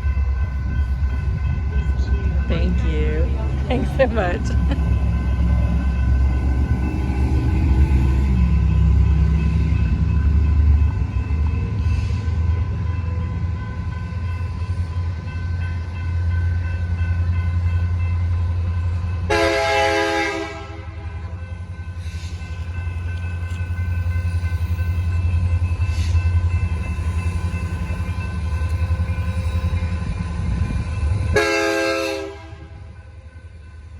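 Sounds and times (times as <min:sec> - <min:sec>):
train rumbling past: 0:00.0 - 0:33.9
train horn blast: 0:19.3 - 0:21.2, 0:31.3 - 0:32.9.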